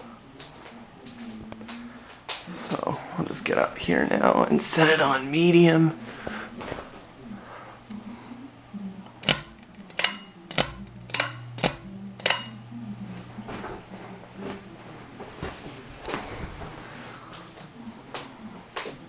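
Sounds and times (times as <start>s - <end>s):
fan motor humming: 0.0s - 19.0s
pull-chain switch clicks: 9.2s - 12.6s.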